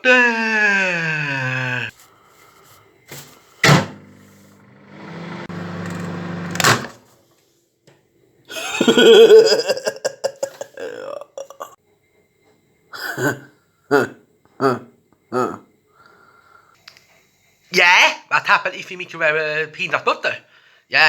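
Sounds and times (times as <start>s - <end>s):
microwave door clunking shut: 3.6s - 4.1s
microwave oven humming: 3.6s - 6.9s.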